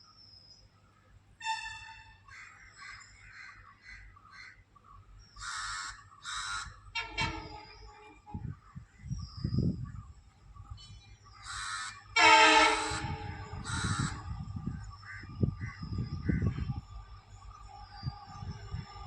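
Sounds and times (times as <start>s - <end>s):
crows cawing: 5.4s - 6.8s, 11.4s - 14.4s
low outdoor rumble: 6.0s - 19.0s.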